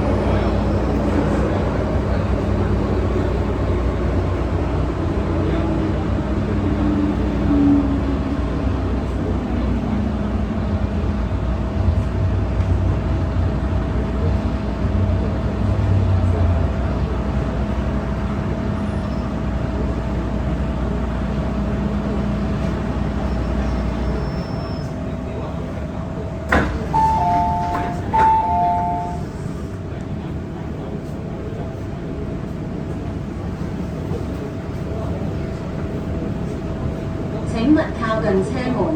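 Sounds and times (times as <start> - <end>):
train wheels rumbling on rail: 0.0 - 38.9
train equipment whine: 17.1 - 25.7, 26.5 - 30.6.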